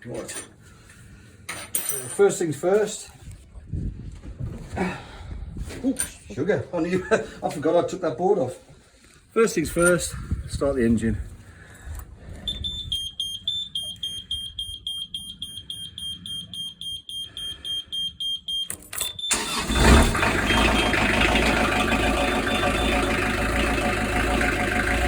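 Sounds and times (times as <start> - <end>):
engine starter cranking: 18.6 - 25.0
boat engine running: 19.4 - 25.0.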